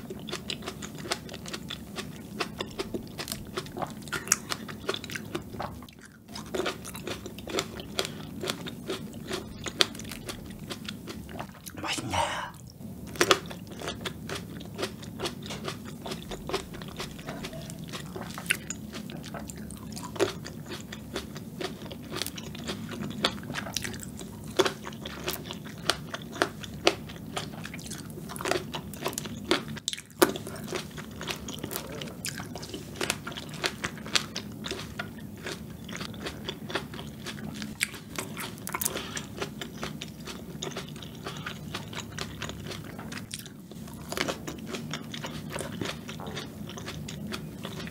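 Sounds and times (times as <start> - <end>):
chewing crisp grapes: 0.0 - 47.9.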